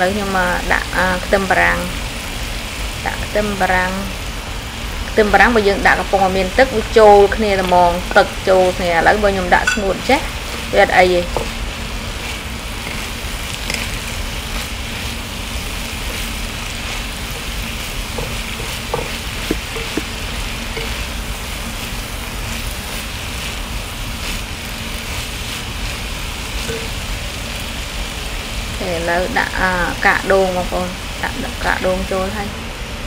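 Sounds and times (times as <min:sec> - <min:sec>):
food sizzling in a wok: 0:00.0 - 0:33.0
wooden spatula scraping and tapping: 0:11.2 - 0:11.6, 0:12.8 - 0:14.7, 0:16.0 - 0:21.2.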